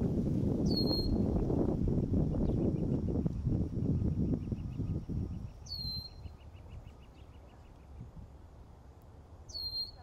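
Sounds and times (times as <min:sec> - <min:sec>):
high whistled bird calls: 0:00.6 - 0:01.3, 0:04.2 - 0:08.1, 0:09.5 - 0:10.0.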